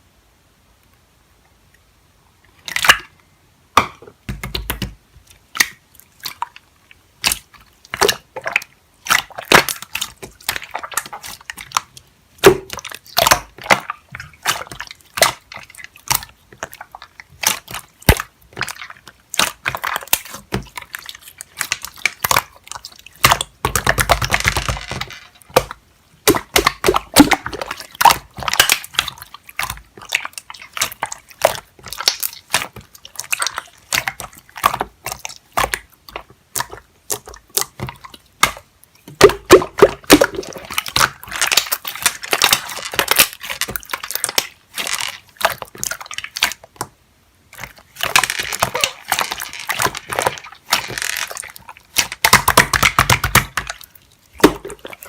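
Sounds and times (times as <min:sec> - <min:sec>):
close crunching and crackling: 0:47.6 - 0:55.0.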